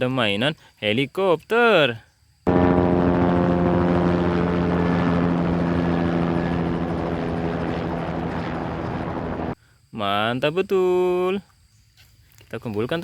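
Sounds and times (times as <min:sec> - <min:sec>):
helicopter engine drone: 0:02.5 - 0:09.6.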